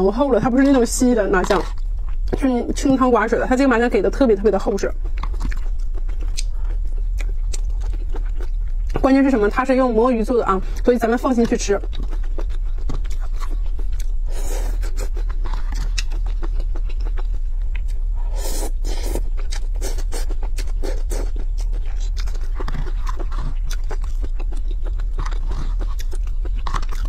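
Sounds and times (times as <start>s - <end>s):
low hum: 0.0s - 27.0s
wet chewing: 0.0s - 27.0s.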